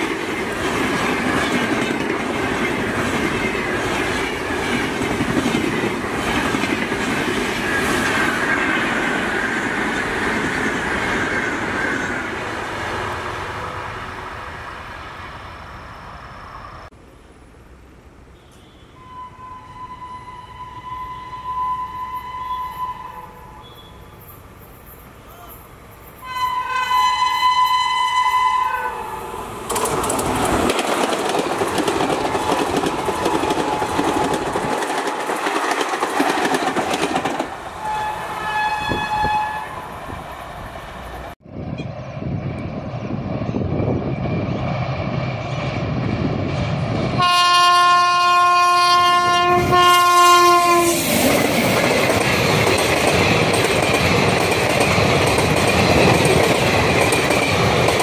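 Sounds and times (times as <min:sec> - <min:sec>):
train wheels clattering: 0:00.0 - 0:12.2, 0:29.7 - 0:37.6, 0:50.9 - 0:58.0
train rumbling: 0:00.0 - 0:58.0
train horn: 0:18.4 - 0:24.1, 0:26.2 - 0:29.2, 0:37.8 - 0:39.9, 0:47.2 - 0:51.0.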